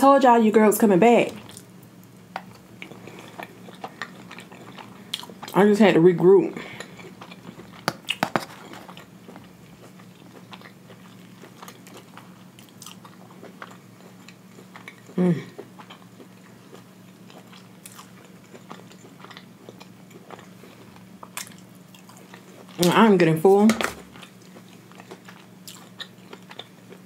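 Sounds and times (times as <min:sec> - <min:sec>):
chewing with wet mouth clicks: 0:01.4 - 0:05.6, 0:06.7 - 0:23.0, 0:23.8 - 0:27.0
person humming briefly: 0:15.2 - 0:15.6.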